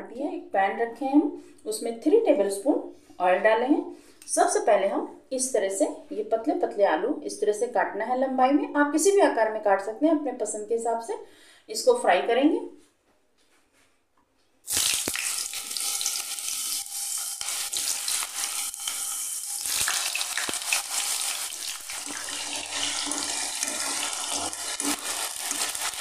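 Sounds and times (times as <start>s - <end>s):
potatoes sizzling in oil: 14.7s - 26.0s.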